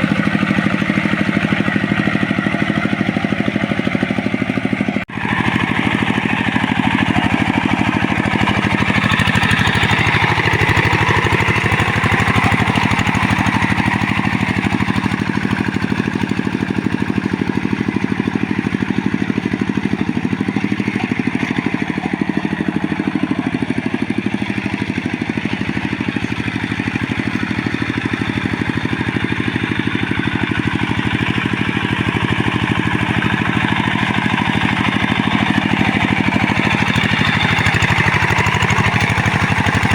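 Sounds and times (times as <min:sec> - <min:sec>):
hand tractor engine running: 0:00.0 - 0:39.9.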